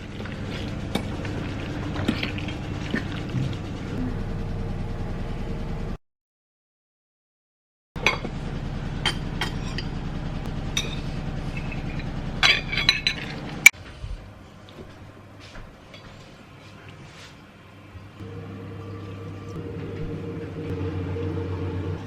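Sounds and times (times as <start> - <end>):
steady low hum: 0.0 - 6.0, 8.0 - 16.9, 17.5 - 22.0
dishes and utensils clinking: 10.8 - 13.7.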